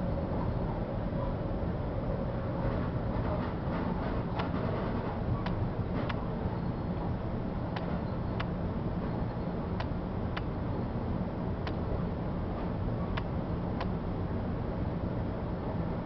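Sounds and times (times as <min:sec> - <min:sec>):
train rumble inside passenger car: 0:00.0 - 0:16.0
wheels clicking over rail joints: 0:02.6 - 0:06.3.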